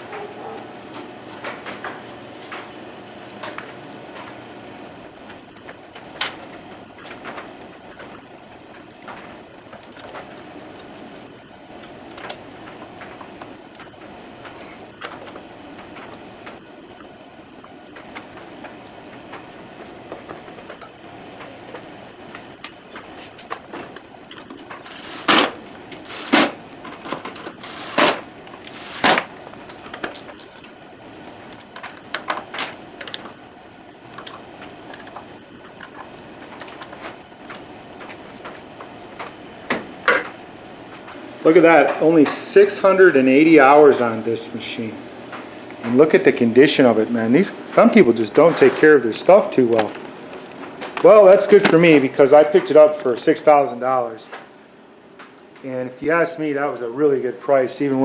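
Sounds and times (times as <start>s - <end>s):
background hum: 0.0s - 41.5s.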